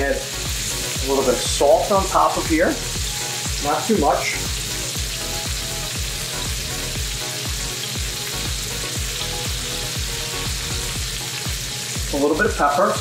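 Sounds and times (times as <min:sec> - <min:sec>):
vegetables sizzling in a frying pan: 0:00.0 - 0:13.0.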